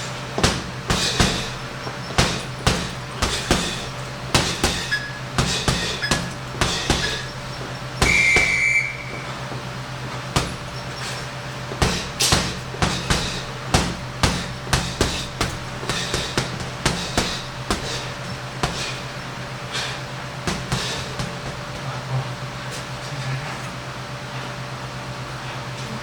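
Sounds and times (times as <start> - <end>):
gloved punches on heavy bag: 0.0 - 21.8.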